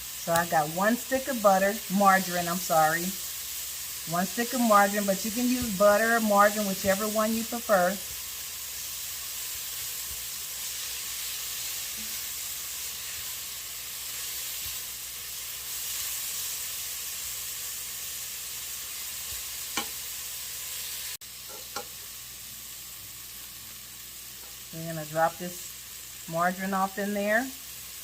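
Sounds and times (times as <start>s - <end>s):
vegetables sizzling in a pot: 0.0s - 28.0s.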